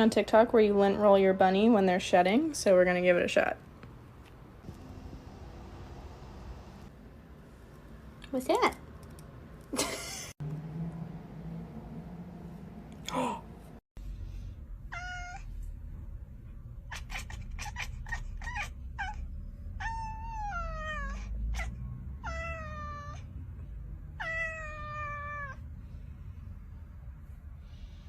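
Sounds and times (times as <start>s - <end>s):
cat meowing: 14.9s - 15.5s, 16.9s - 23.3s, 24.2s - 25.6s.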